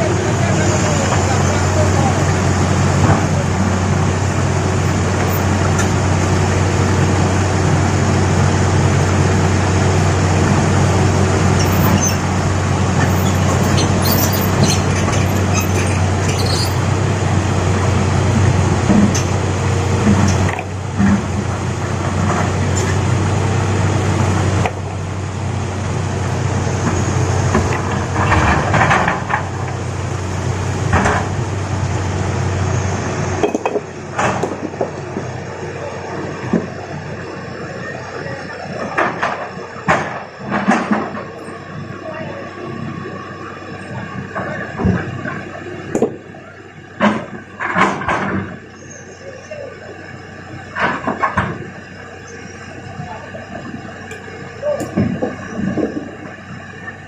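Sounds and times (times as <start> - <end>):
excavator diesel engine running: 0.0 - 57.0
rocks knocking and clanking on metal: 54.8 - 56.1.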